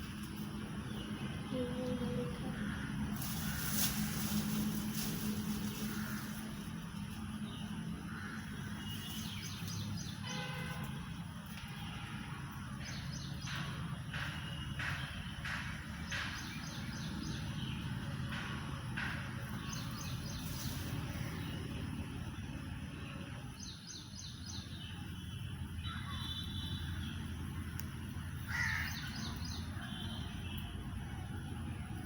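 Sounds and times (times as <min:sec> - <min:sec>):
harsh bird caws: 0:28.4 - 0:29.4.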